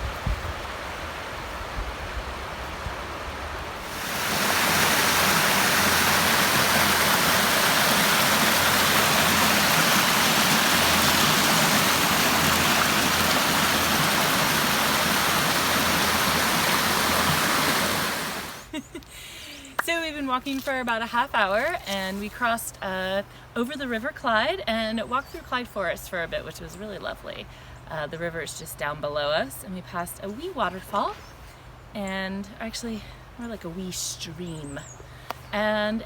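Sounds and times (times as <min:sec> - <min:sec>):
rushing river water: 0:00.0 - 0:18.7
soft water hiss: 0:00.0 - 0:18.9.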